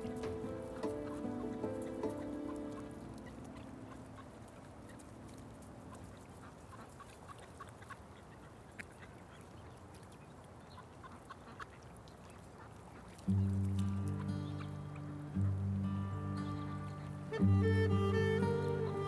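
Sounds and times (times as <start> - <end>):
background music: 0.0 - 6.1, 13.3 - 19.0.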